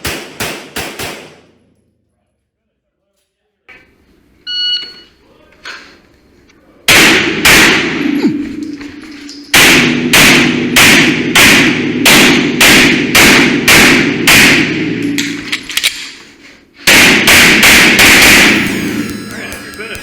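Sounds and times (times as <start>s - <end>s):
pistol shots: 9.6s - 14.8s.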